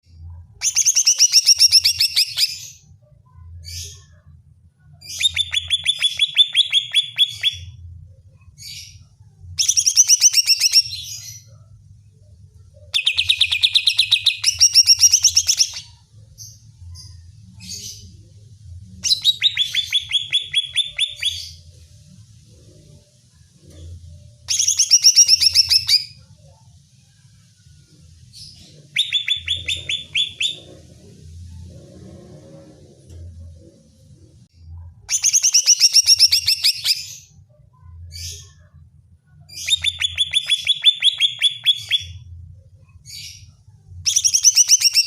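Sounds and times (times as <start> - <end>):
faint low hum: 0.0 - 45.0
bird singing rapid notes: 19.0 - 21.6, 28.9 - 30.8.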